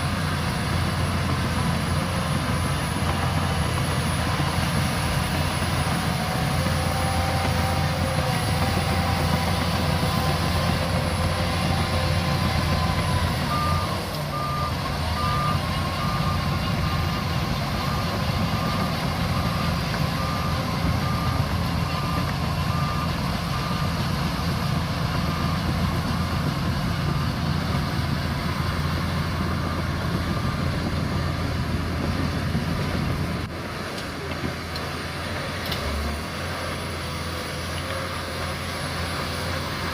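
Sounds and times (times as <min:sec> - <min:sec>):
bulldozer diesel engine: 0:00.0 - 0:39.9
reversing alarm beeping: 0:02.5 - 0:26.6.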